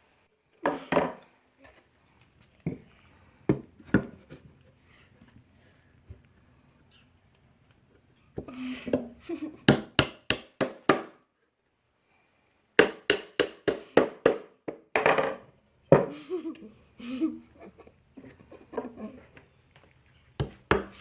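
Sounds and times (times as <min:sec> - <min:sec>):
hammer driving nails into wood: 0:12.8 - 0:14.8, 0:20.4 - 0:21.0.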